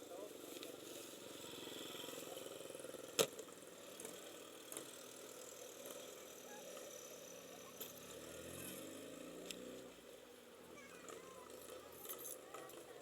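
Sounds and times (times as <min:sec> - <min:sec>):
motorcycle engine running: 0:00.3 - 0:10.0.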